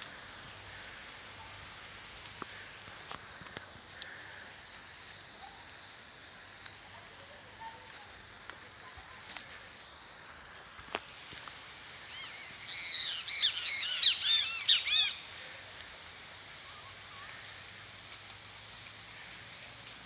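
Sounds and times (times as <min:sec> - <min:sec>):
bird chirping call: 0:12.1 - 0:15.2.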